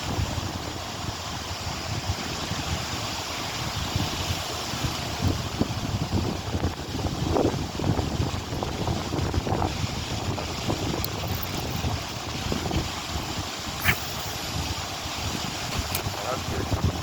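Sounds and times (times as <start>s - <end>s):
wind buffeting microphone: 0.0s - 17.0s
sharp click: 13.8s - 14.3s.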